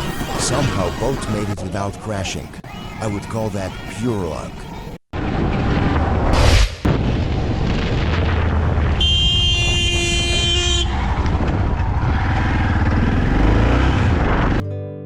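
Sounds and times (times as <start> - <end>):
vehicle horn blast: 9.0 - 11.0
motorcycle riding noise: 9.0 - 14.6.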